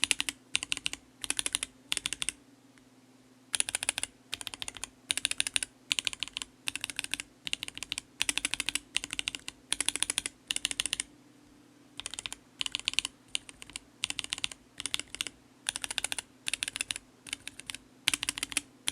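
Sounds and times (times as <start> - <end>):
mechanical keyboard typing: 0.0 - 2.4, 3.5 - 11.1, 12.0 - 18.9.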